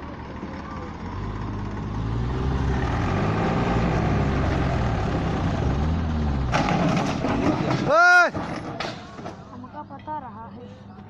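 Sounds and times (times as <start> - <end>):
tractor engine revving: 0.4 - 8.5.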